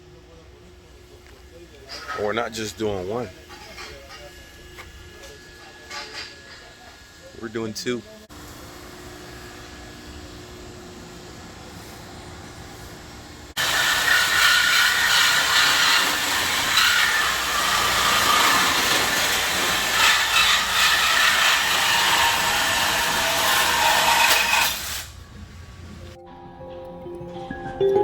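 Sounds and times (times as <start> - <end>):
power tool grinding steel pipe: 13.6 - 25.0.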